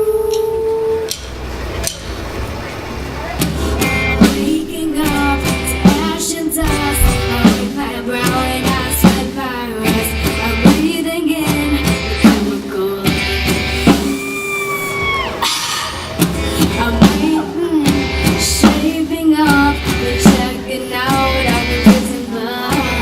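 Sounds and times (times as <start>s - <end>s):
live rock band playing: 0.4s - 23.0s
heavy drum hits: 3.4s - 9.3s
person singing: 4.2s - 23.0s.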